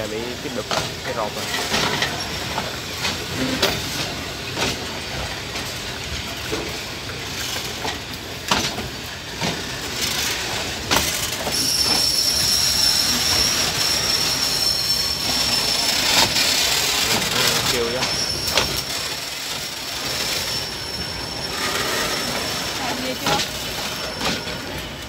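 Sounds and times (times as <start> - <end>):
train wheels rumbling: 0.0 - 25.0
high-pitched metallic wheel squeal: 11.4 - 25.0.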